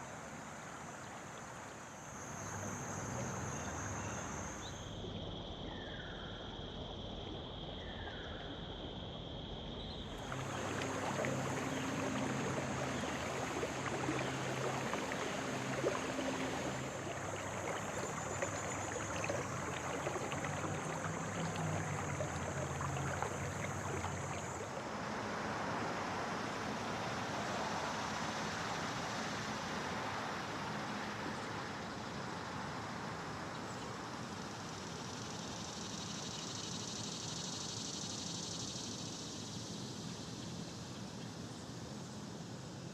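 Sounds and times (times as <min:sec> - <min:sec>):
steady high whine: 0:10.0 - 0:24.8
rushing noise with low hum: 0:10.0 - 0:30.7.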